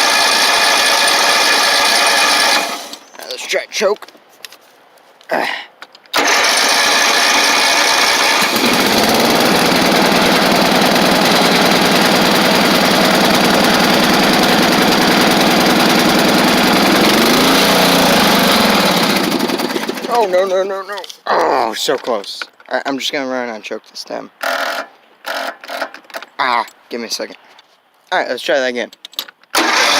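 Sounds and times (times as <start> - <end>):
lawn tractor engine starting and running: 0.0 - 3.1, 6.1 - 20.4, 29.5 - 29.9.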